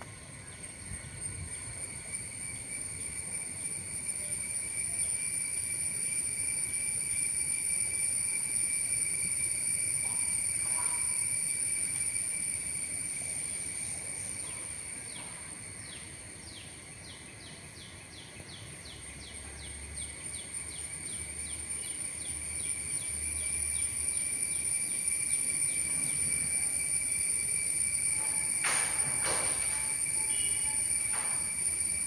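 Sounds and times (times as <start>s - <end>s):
insects trilling: 0.0s - 32.0s
bird whistling descending notes: 20.6s - 32.0s.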